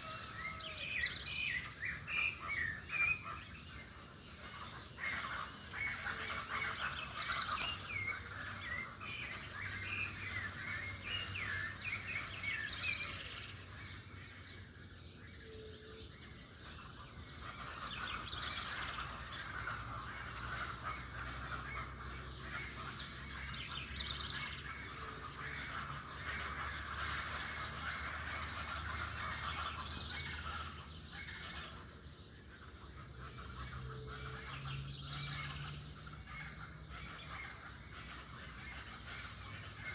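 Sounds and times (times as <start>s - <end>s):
birds chirping and singing: 0.0s - 39.9s
low steady hum: 0.0s - 39.9s.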